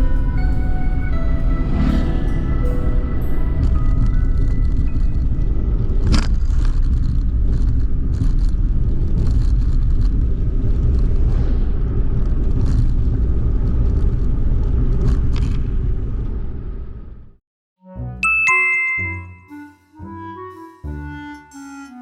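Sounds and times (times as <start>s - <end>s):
road and tyre rumble: 0.0s - 17.4s.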